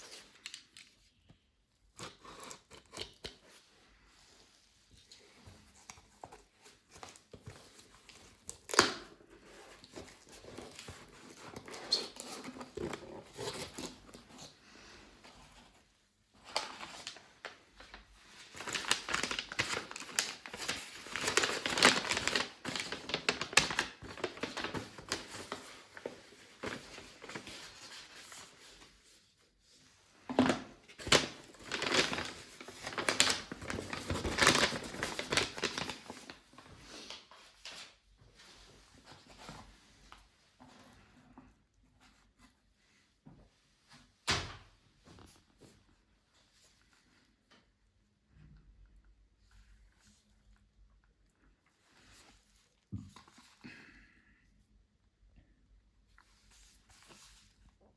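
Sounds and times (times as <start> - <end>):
plastic and cardboard crinkling: 15.3 - 29.2, 30.3 - 38.0
packaging tearing: 18.5 - 25.6, 31.0 - 36.4.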